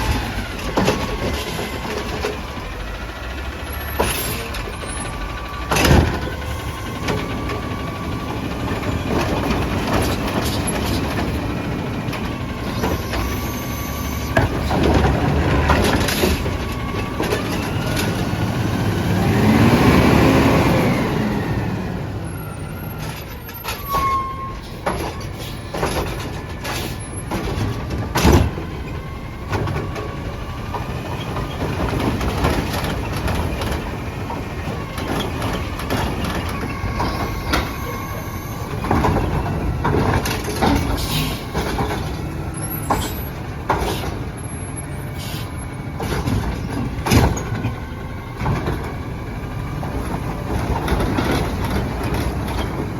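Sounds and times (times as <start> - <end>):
garbage truck engine running: 0.0 - 52.9
short squeal: 12.7 - 14.4, 22.9 - 25.8, 36.2 - 38.9, 40.9 - 41.6.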